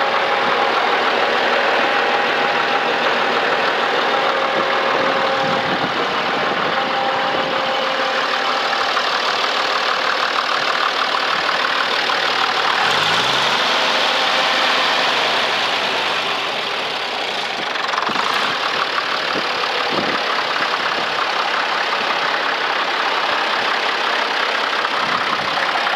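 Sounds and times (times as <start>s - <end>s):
tractor engine running: 0.0s - 25.9s.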